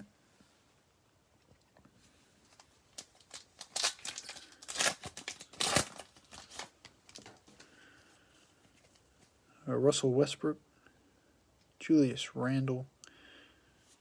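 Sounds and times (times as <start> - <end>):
foil wrapper tearing and crinkling: 2.9 - 7.4.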